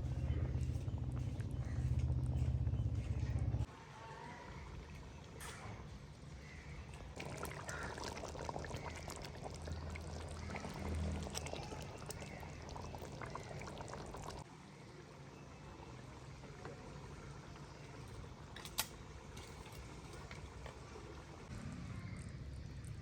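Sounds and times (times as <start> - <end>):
liquid being poured: 6.9 - 14.4.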